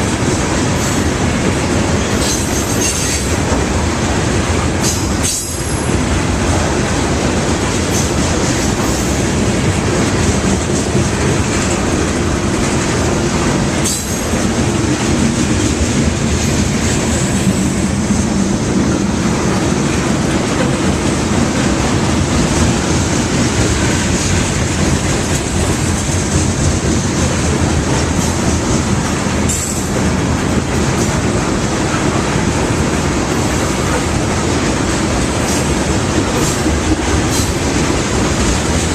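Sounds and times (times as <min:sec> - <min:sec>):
freight train rolling past: 0:00.0 - 0:38.9
steel wheels rumbling on rail: 0:00.0 - 0:38.9.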